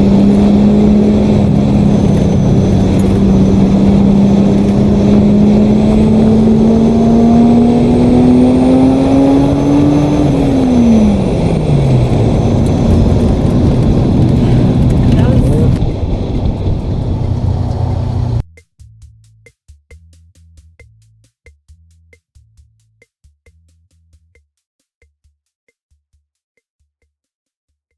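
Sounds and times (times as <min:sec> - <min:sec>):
car engine pulling: 0:00.0 - 0:18.4.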